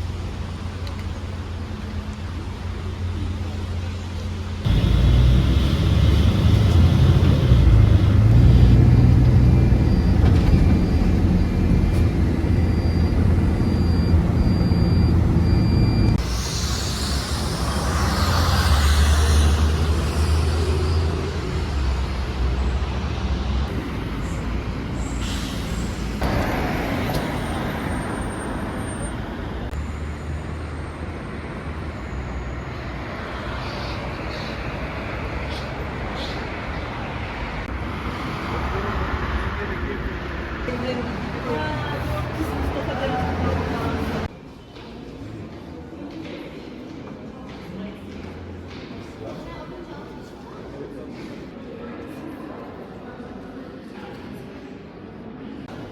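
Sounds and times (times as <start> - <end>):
street traffic hiss: 0.0 - 9.8, 16.2 - 44.3
heavy vehicle engine rumbling: 0.0 - 44.3.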